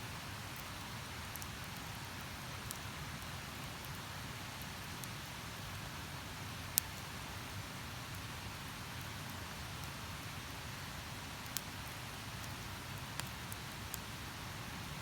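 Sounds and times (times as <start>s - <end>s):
campfire hissing: 0.1s - 15.0s
fire crackling pops: 0.4s - 2.0s, 11.4s - 14.1s.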